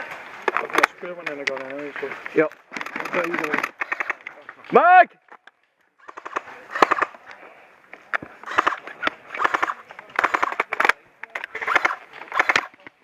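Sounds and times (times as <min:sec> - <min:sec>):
airsoft guns firing bursts: 0:02.8 - 0:04.3, 0:06.0 - 0:07.2, 0:08.3 - 0:13.0.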